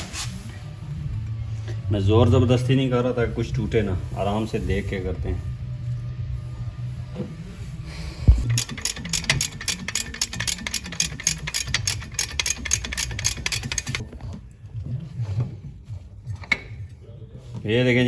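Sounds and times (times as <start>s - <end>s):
sharp metallic clicks: 8.4s - 14.0s.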